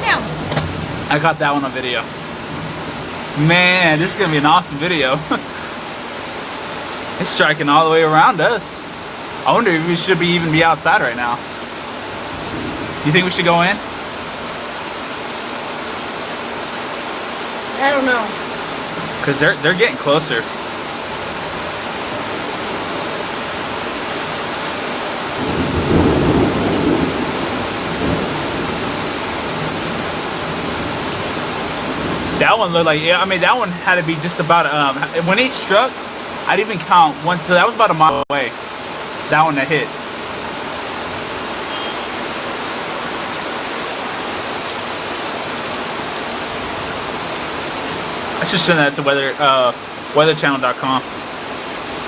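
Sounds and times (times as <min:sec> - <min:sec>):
steady rain: 0:00.0 - 0:52.0
rolling thunder: 0:12.2 - 0:14.3, 0:25.3 - 0:32.6.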